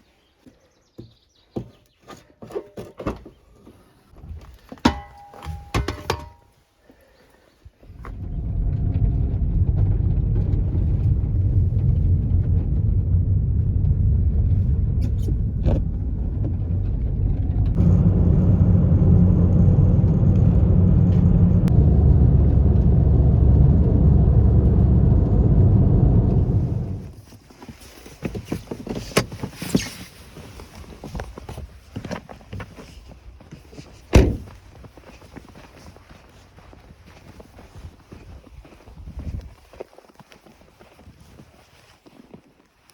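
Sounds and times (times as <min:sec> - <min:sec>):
vehicle engine starting and running: 0:07.8 - 0:27.2.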